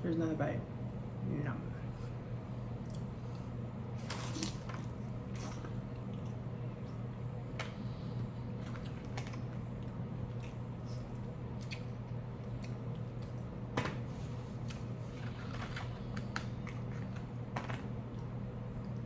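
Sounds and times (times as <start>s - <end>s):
steady low hum: 0.0s - 19.0s
person chewing: 2.8s - 7.1s, 8.6s - 13.6s.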